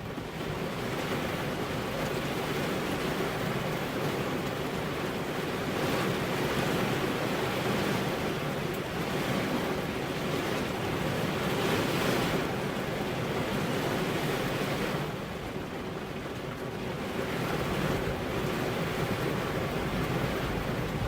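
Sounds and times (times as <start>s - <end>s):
heavy rain falling: 15.3s - 21.0s.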